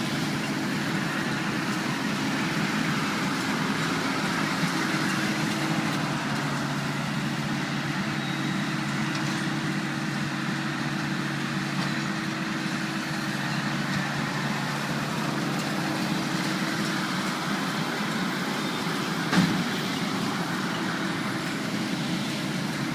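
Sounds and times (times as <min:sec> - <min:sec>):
tractor and hay baler running: 0:00.0 - 0:22.9
machinery clunk: 0:19.2 - 0:19.8.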